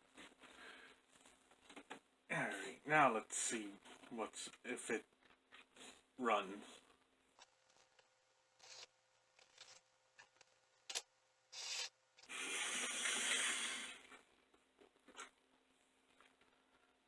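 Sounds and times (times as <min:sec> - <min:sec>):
rubbing and scraping: 0:07.4 - 0:11.0, 0:11.6 - 0:12.4
model locomotive scraping on track: 0:08.6 - 0:09.8, 0:11.6 - 0:12.8.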